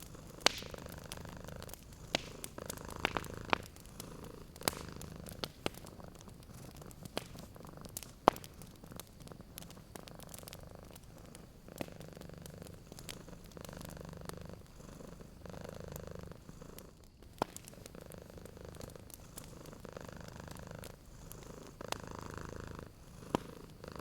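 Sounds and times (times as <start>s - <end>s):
cat purring: 0.0s - 24.0s
wood fire crackling: 0.0s - 24.0s.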